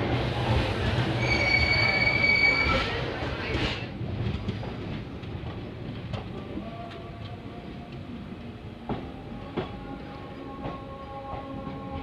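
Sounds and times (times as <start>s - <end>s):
train wheels rumbling on rails: 0.0s - 12.0s
faint thin squeal: 1.2s - 3.0s.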